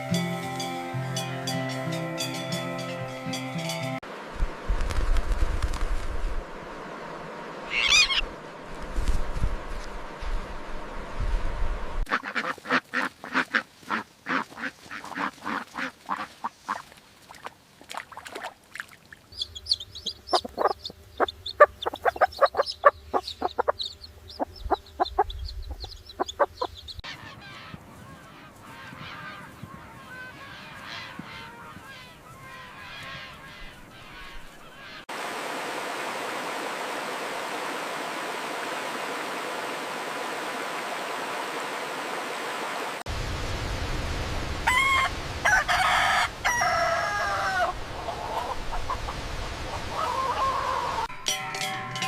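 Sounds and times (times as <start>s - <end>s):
fowl honking and cackling: 7.7s - 8.3s, 12.1s - 16.8s, 20.0s - 25.3s, 26.2s - 35.0s, 44.7s - 51.1s
running water rushing: 34.1s - 51.1s.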